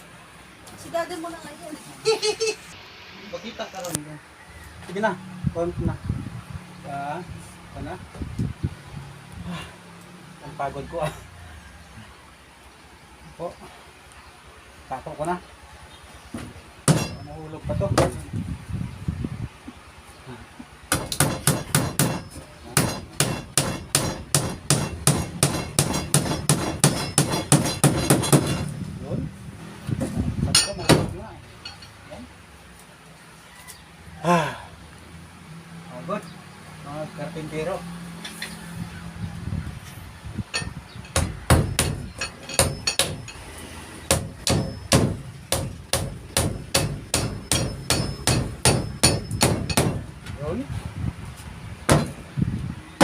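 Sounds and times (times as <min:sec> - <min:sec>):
hammer driving nails: 0:20.9 - 0:28.7, 0:41.1 - 0:43.4, 0:44.1 - 0:50.0, 0:51.9 - 0:52.2
hammer driving nails into wood: 0:20.9 - 0:28.7, 0:51.9 - 0:52.2.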